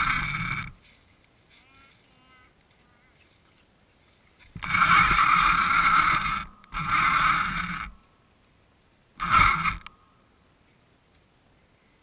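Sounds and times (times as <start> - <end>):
rc car motor running: 0.0 - 0.8, 4.6 - 8.0, 9.2 - 9.9.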